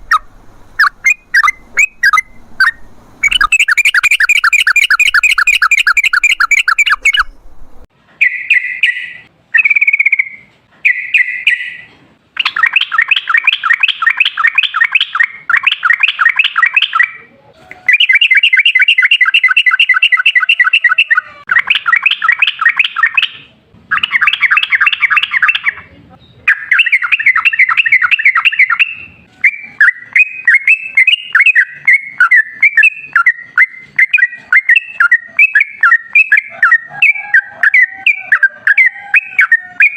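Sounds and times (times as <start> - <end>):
bulbul singing chattering notes: 0.0 - 7.5.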